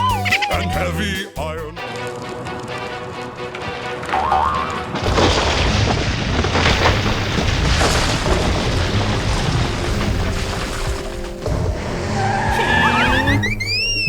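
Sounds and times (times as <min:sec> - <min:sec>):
cartoon music: 0:00.0 - 0:02.1, 0:12.2 - 0:14.0
explosion boom rumbling: 0:04.9 - 0:11.7.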